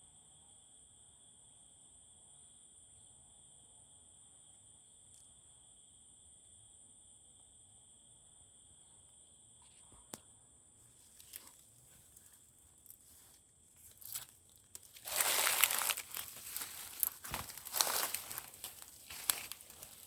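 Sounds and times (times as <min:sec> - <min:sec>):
crackling crinkling rustling: 0:11.0 - 0:20.0
high insect drone: 0:13.9 - 0:20.0.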